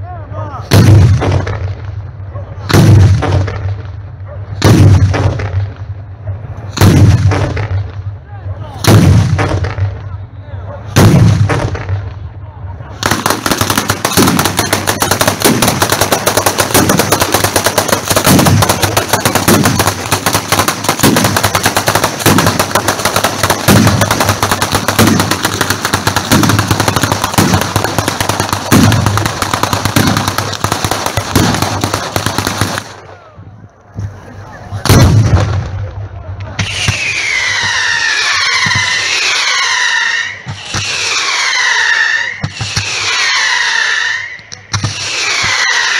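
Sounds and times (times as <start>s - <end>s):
heavy firework thumps: 0.7s - 1.8s, 8.8s - 10.0s, 11.0s - 12.0s, 13.1s - 31.8s
fireworks cracking rapidly: 10.9s - 12.1s, 13.0s - 33.1s, 34.8s - 45.9s.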